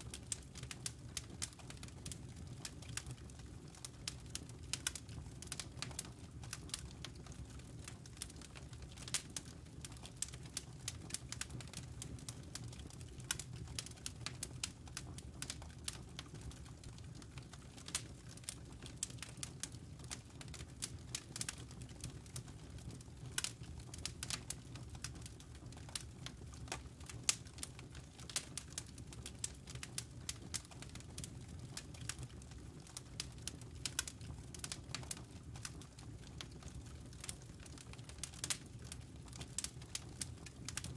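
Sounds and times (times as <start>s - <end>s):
low rumble of fire: 0.0s - 40.9s
burning wood crackling: 0.1s - 40.9s.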